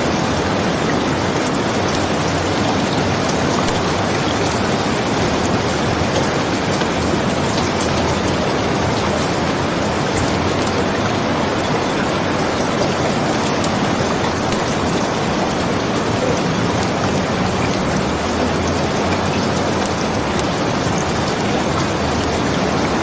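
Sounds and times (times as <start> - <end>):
steady rainfall: 0.0 - 23.0.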